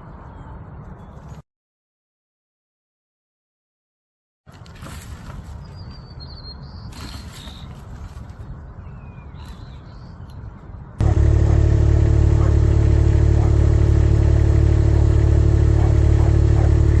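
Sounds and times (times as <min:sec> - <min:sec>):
loud engine-like drone: 0:11.0 - 0:17.0.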